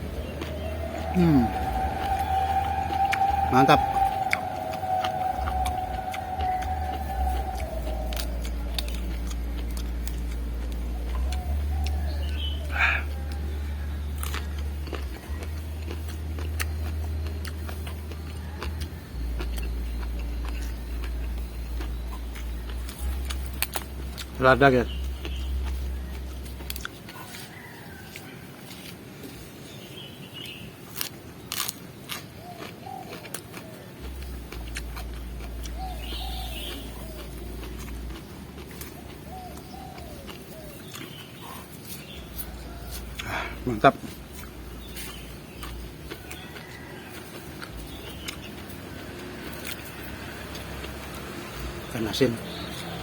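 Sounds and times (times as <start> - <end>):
dove cooing: 0.0 - 9.6, 35.7 - 38.2
low rumble: 0.0 - 26.9, 34.0 - 41.0, 42.1 - 46.4
chewing raw vegetables: 0.0 - 53.0.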